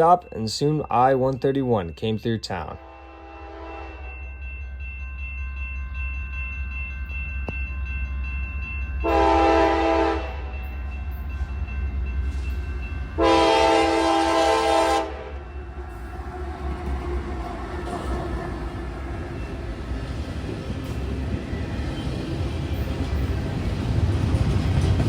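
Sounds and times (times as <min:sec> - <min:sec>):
locomotive horn blasts: 0:02.8 - 0:04.2, 0:09.1 - 0:10.5, 0:13.2 - 0:15.4
diesel train rumbling: 0:08.7 - 0:25.0.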